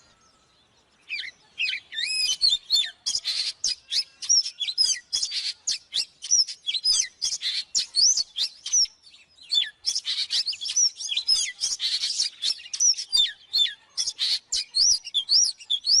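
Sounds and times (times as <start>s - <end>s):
bird singing whistled notes: 0.0s - 16.0s.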